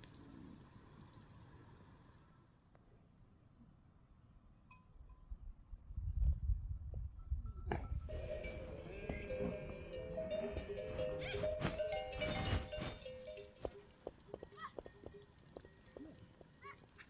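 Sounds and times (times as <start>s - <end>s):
livestock bells clanking: 7.5s - 17.0s.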